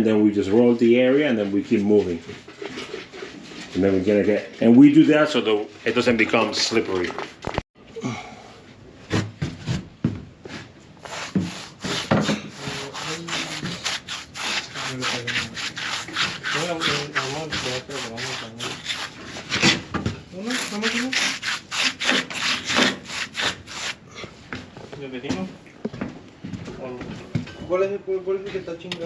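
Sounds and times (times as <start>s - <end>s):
paint roller gritty rubbing: 0.8s - 7.5s, 11.0s - 24.0s.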